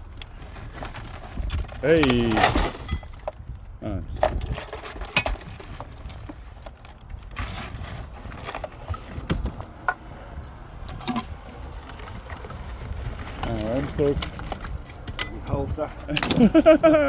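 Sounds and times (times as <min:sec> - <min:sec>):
hard objects knocking and clattering: 0:00.5 - 0:17.0.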